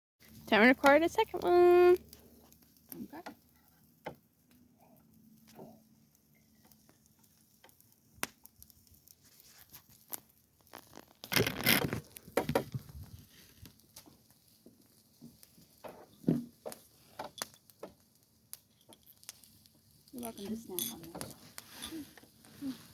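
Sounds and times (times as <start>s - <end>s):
crinkling tearing sound: 8.3s - 15.6s.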